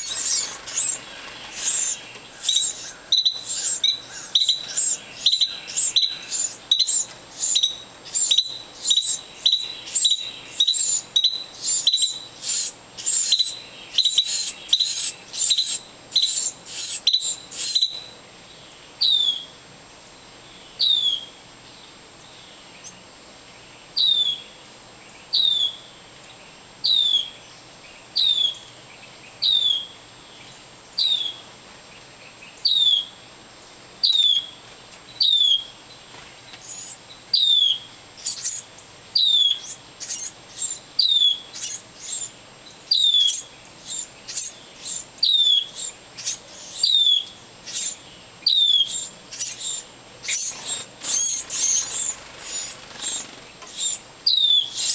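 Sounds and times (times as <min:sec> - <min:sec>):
quick high bird calls: 0:00.0 - 0:11.0, 0:42.9 - 0:54.9.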